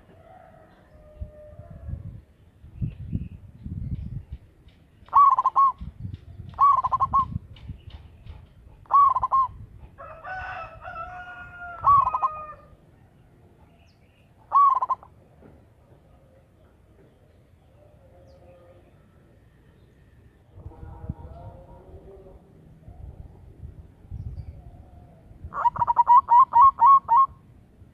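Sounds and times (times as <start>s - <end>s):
longer level bird call: 4.7s - 9.6s, 10.5s - 15.2s, 24.1s - 27.5s
dove cooing: 5.1s - 7.4s, 8.3s - 10.0s, 11.8s - 12.8s, 14.4s - 15.2s, 24.4s - 27.4s.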